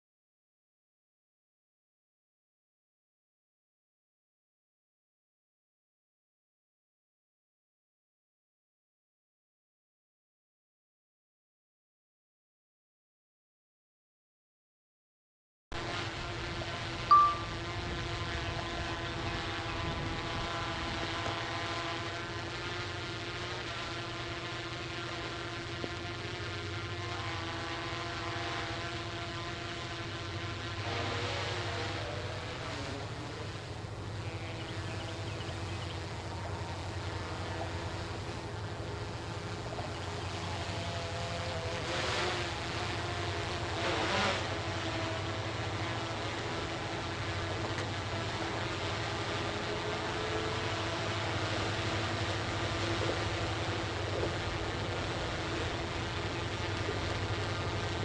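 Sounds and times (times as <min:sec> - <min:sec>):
tugboat diesel engine drone: 0:15.8 - 0:58.0.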